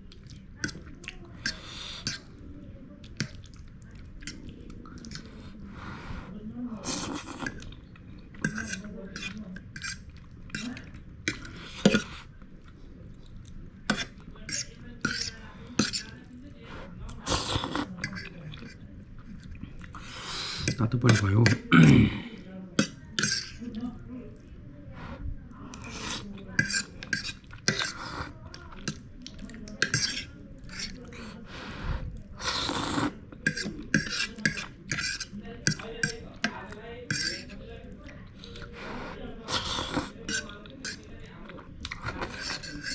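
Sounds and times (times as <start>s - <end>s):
cutlery clinking against a bowl: 8.4s - 12.2s, 13.9s - 16.1s, 20.6s - 21.7s, 22.8s - 23.6s, 26.6s - 28.0s, 29.7s - 30.9s, 33.4s - 37.5s, 39.9s - 41.1s, 41.9s - 42.9s
utensil clinking against bowl: 33.5s - 37.4s.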